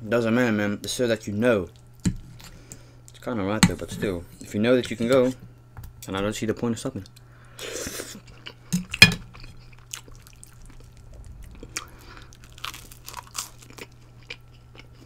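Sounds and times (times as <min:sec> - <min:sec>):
crunching and chewing toast: 0:08.1 - 0:15.0.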